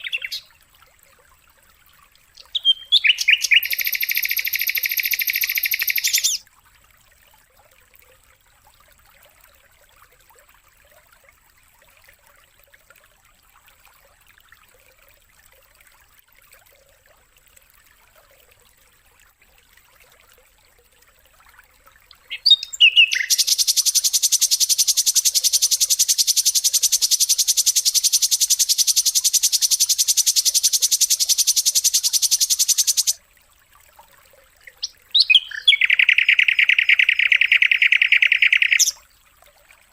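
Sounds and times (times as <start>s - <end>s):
rapid buzzing bird trill: 0.0s - 0.4s, 2.5s - 6.4s, 22.3s - 33.2s, 34.8s - 39.0s
bird chirps: 0.0s - 0.5s, 2.4s - 6.4s, 22.2s - 33.2s, 34.8s - 39.0s
faint hiss: 23.1s - 33.2s.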